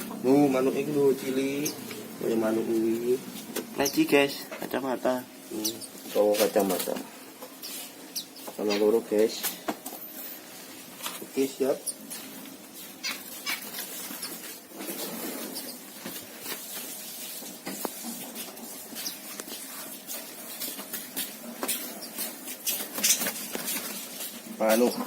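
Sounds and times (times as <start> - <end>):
small birds chirping: 0.0 - 4.8, 5.4 - 9.6, 11.3 - 16.0, 18.8 - 19.8, 21.8 - 23.6.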